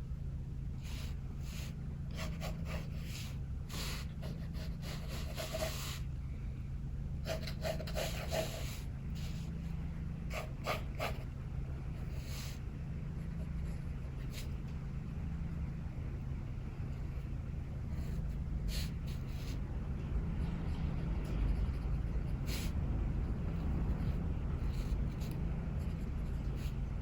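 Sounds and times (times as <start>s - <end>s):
pencil scratching on paper: 0.9s - 6.0s, 7.2s - 9.5s, 10.2s - 11.3s, 13.2s - 14.5s, 20.4s - 26.8s.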